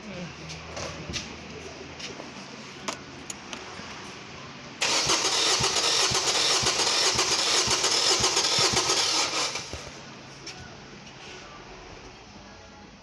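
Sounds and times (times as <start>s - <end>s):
engine cranking on starter motor: 4.8s - 10.0s.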